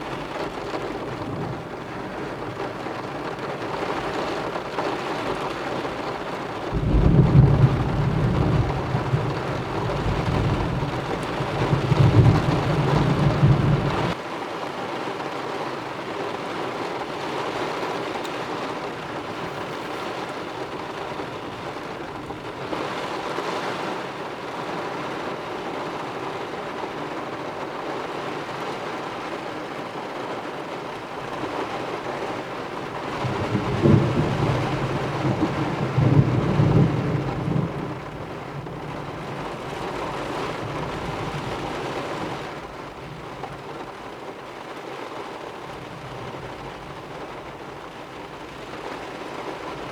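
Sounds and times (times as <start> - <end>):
heavy rain: 0.0 - 49.9
rolling thunder: 6.7 - 14.2, 33.0 - 43.2.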